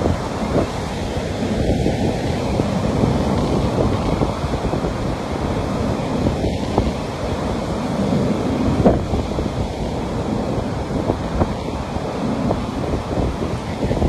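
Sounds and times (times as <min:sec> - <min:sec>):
waves breaking: 0:00.0 - 0:14.0
wind buffeting microphone: 0:00.0 - 0:14.0.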